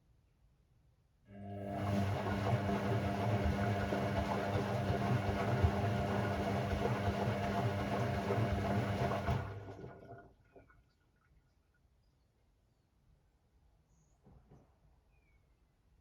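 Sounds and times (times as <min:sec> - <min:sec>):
washing machine humming: 0:01.3 - 0:10.8.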